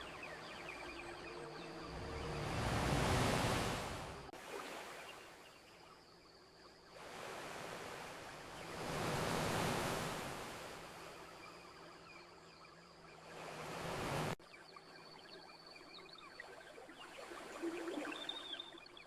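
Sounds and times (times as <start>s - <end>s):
ocean waves washing onto beach: 0.0s - 5.3s, 7.0s - 11.3s, 13.2s - 14.4s.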